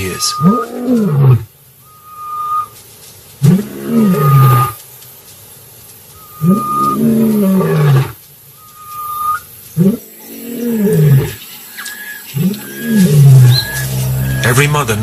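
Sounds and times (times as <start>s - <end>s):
lion roaring: 0.0s - 1.5s, 3.4s - 4.8s, 6.3s - 8.2s, 9.8s - 11.4s, 12.3s - 14.9s.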